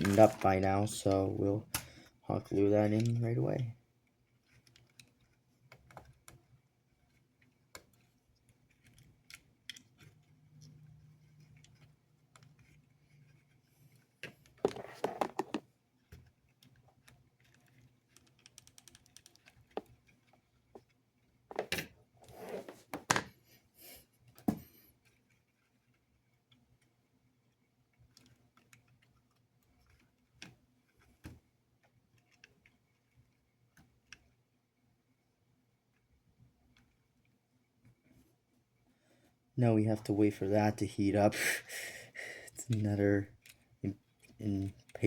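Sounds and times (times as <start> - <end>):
plastic parts clicking and tapping: 0.0 - 22.1, 24.2 - 34.5.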